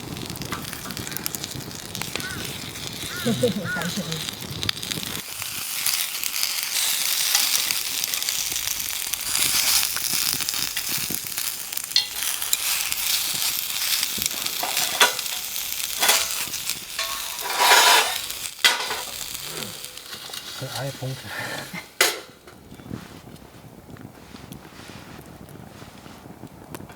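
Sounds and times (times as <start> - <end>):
fire crackles and pops: 0.0 - 26.9
skewers sizzling on a grill: 0.0 - 26.9.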